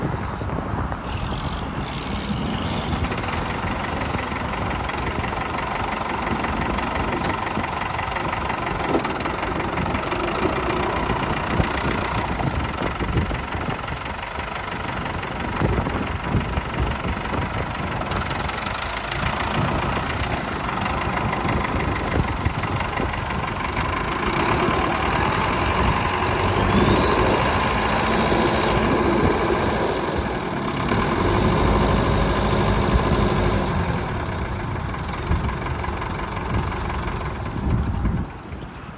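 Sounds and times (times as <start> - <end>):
tractor diesel engine idling: 1.0 - 38.9.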